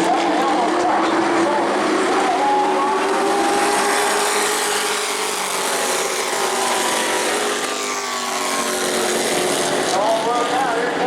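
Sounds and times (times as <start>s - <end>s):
race truck engines at high revs: 0.0s - 11.0s.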